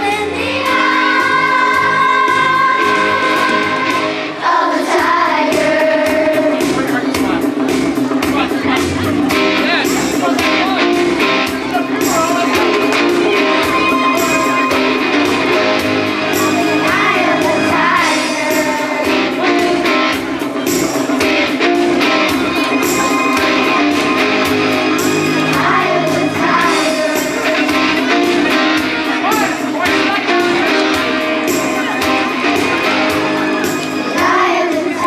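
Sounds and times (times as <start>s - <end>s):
guitar: 0.0s - 35.0s
live band music: 0.0s - 35.0s
person singing: 11.8s - 28.9s.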